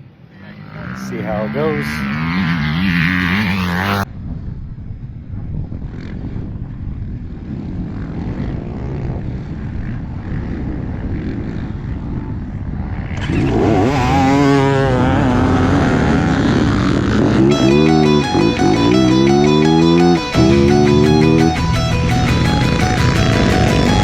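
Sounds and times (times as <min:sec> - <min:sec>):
dirt bike engines revving: 0:00.4 - 0:04.0, 0:07.5 - 0:24.0.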